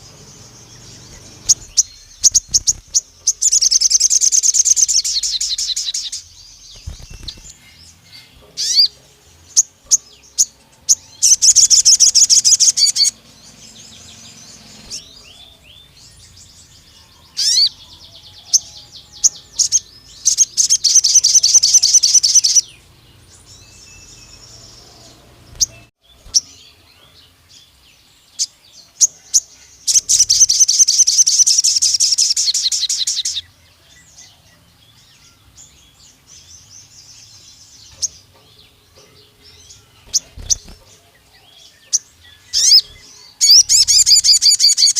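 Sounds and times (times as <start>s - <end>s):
songbird singing rapid trills: 0.0s - 44.9s
single bird chirps: 0.9s - 8.9s.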